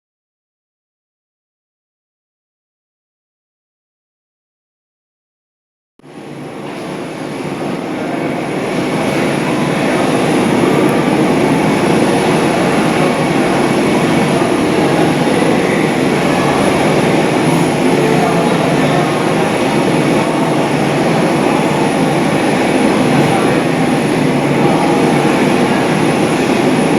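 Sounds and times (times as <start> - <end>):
jet engines roaring with whine: 6.0 - 26.9.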